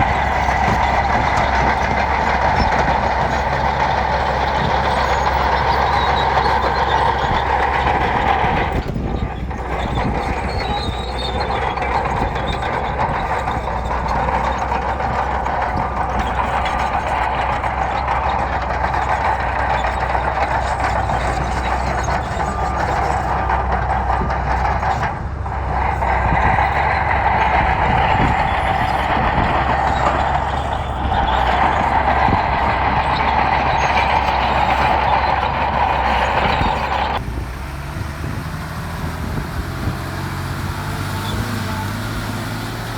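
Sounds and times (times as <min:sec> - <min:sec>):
bulldozer diesel engine under load: 0:00.0 - 0:42.9.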